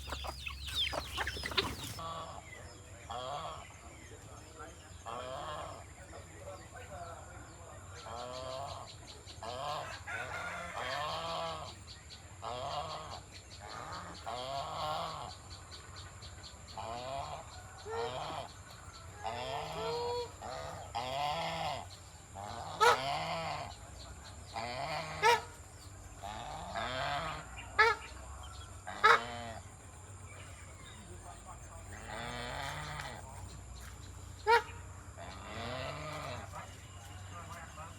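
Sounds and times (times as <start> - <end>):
geese honking: 0.0 - 2.4, 19.2 - 23.7, 24.5 - 25.6, 26.2 - 29.7, 31.8 - 33.5, 34.4 - 37.9.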